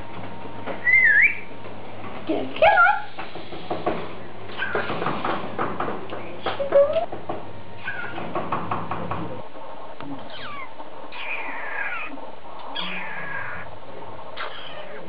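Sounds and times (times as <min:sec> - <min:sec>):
cockatiel calling: 0:00.8 - 0:01.5, 0:07.8 - 0:08.2, 0:10.3 - 0:13.7, 0:14.4 - 0:15.0.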